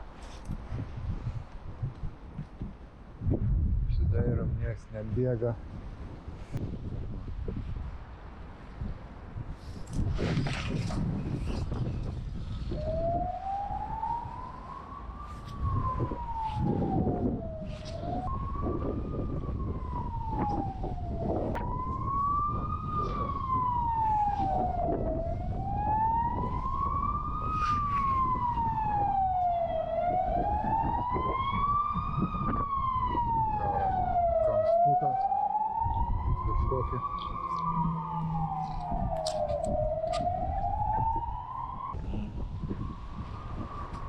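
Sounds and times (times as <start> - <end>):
steady low rumble: 0.0 - 10.2
emergency siren wailing: 10.4 - 44.0.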